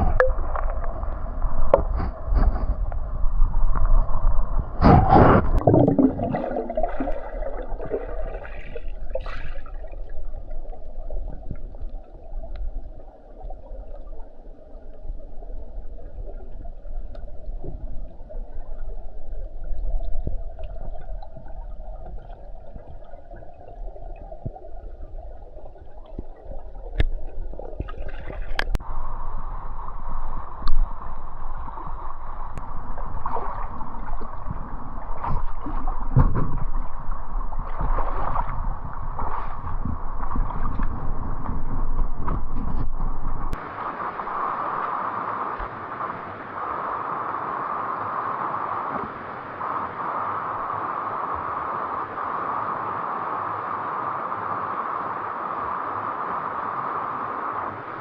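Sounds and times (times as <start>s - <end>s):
water gurgling and sloshing: 0.0s - 45.8s
water splash surge: 4.8s - 10.1s.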